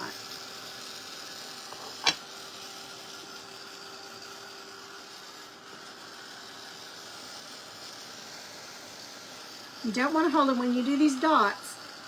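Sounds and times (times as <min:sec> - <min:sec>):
heat gun blowing: 0:04.6 - 0:12.0.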